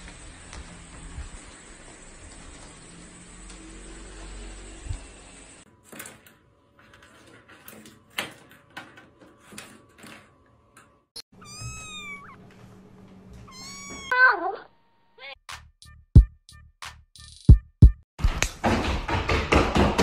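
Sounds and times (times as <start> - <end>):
cat meowing: 11.4 - 12.4, 13.4 - 14.2.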